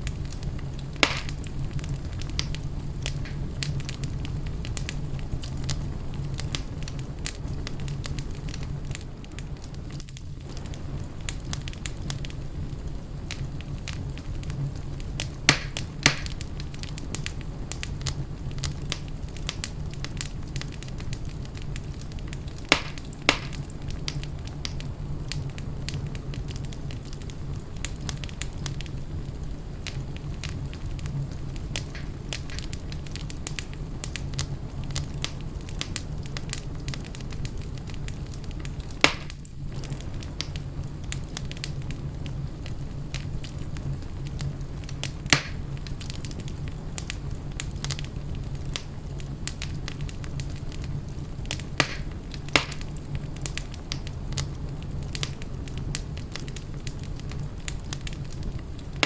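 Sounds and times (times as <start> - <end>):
sharp fire pops: 0.0 - 59.0
wood fire crackling: 0.0 - 59.0.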